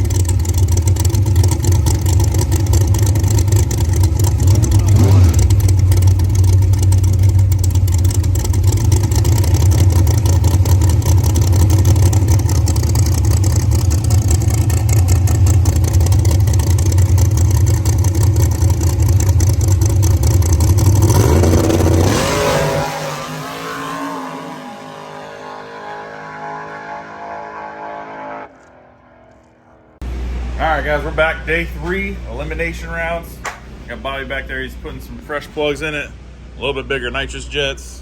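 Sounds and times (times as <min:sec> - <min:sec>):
race car engine running hard: 0:00.0 - 0:28.7.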